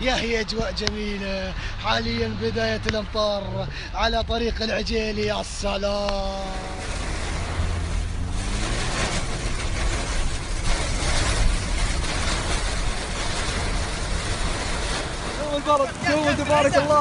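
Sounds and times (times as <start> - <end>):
car engine hum and road noise: 0.0 - 17.0
rain and hail on car roof: 0.0 - 17.0.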